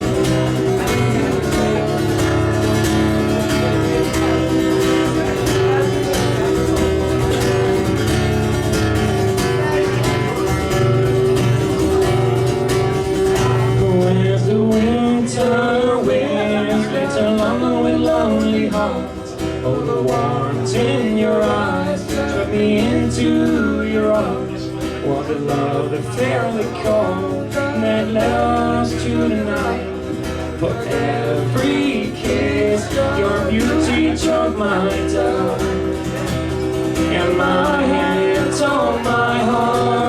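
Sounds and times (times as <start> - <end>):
bass: 0.0 - 40.0
strummed acoustic guitar: 0.0 - 40.0.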